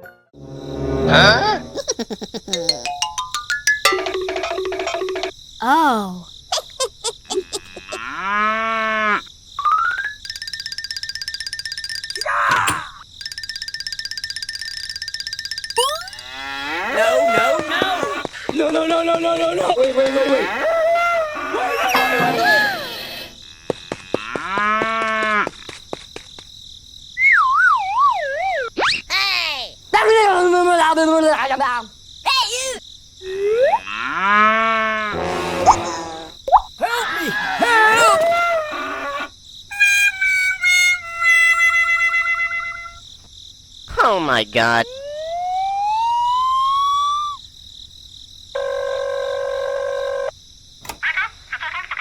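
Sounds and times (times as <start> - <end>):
moo-like call: 7.5 - 9.2, 33.8 - 36.4
wavering whistling tone: 44.9 - 47.4.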